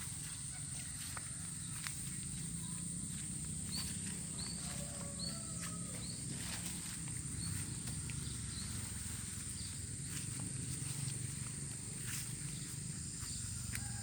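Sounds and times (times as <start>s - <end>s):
high-pitched insect drone: 0.0s - 14.0s
bird chirping: 1.6s - 14.0s.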